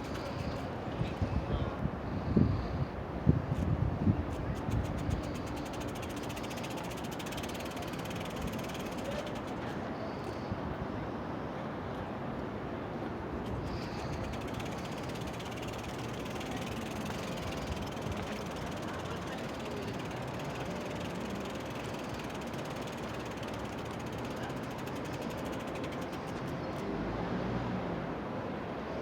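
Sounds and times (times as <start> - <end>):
rapid mechanical clicking: 0.0 - 0.8, 4.3 - 10.4, 13.4 - 26.9
steady rumble: 13.4 - 26.6.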